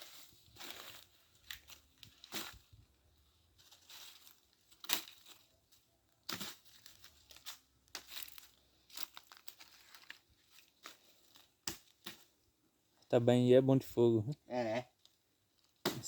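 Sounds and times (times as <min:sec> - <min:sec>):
firewood and brush rustling: 0:00.0 - 0:12.4.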